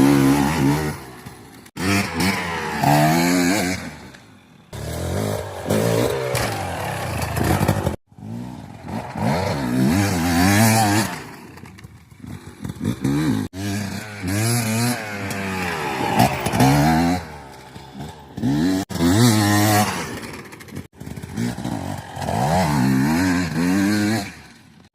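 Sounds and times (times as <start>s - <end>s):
two-stroke engine revving: 0.0s - 4.1s, 4.7s - 24.8s.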